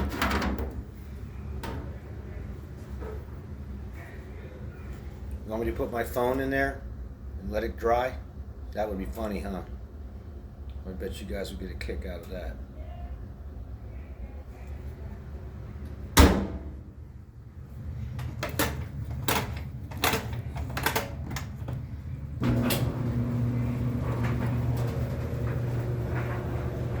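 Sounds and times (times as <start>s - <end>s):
dryer running with steady hum: 0.0s - 27.0s
dryer door banging shut: 16.2s - 16.8s.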